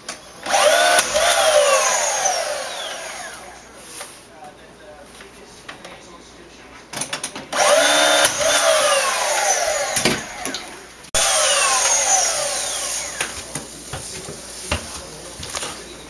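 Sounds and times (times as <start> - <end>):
power saw cutting wood: 0.0 - 3.8, 7.5 - 15.4.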